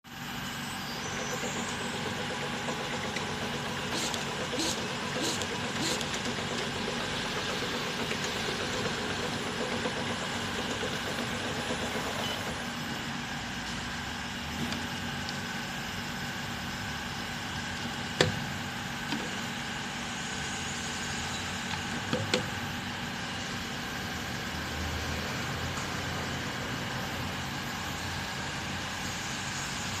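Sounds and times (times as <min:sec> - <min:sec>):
labeling machine humming: 0:00.1 - 0:30.0
sharp machine click: 0:03.9 - 0:06.3.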